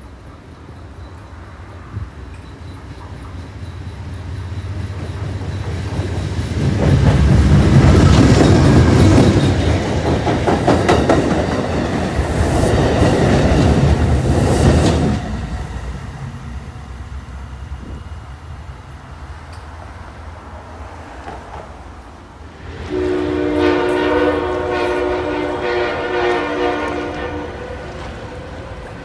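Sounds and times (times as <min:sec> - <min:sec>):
train wheels clacking: 0:01.1 - 0:17.0.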